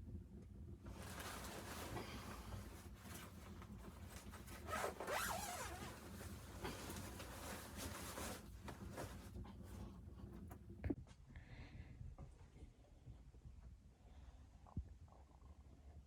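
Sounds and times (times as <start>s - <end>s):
fabric rustling: 0.9s - 10.4s
zipper being worked: 4.2s - 9.1s.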